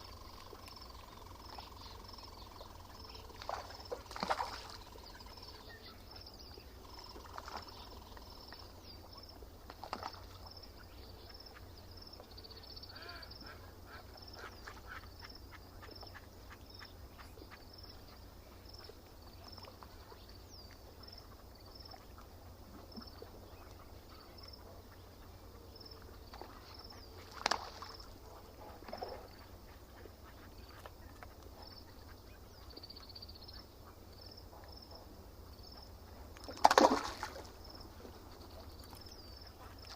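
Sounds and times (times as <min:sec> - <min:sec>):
small bird chirping: 0:00.0 - 0:35.0
ducks quacking: 0:12.9 - 0:18.3.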